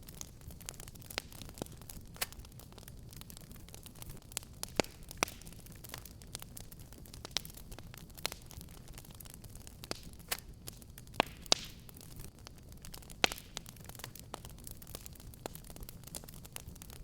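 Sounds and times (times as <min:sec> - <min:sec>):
fire pops: 0:00.0 - 0:17.0
fireplace fire crackling: 0:00.0 - 0:17.0.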